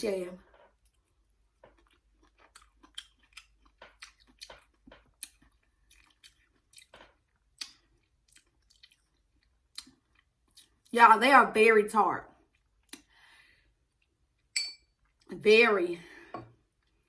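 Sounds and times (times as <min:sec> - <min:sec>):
person chewing crunchy food: 0:00.5 - 0:10.9, 0:12.4 - 0:15.3
wet mouth clicks: 0:07.6 - 0:08.8.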